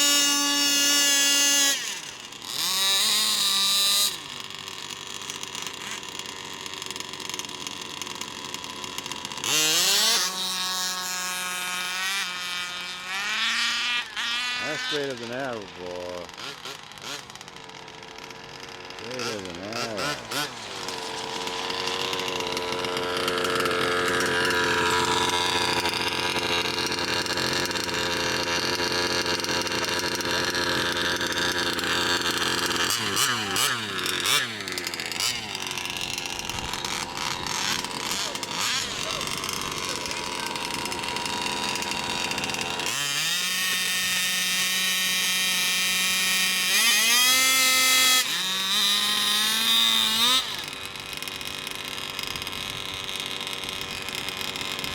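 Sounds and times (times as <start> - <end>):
small engine buzzing at high revs: 0.0 - 54.9.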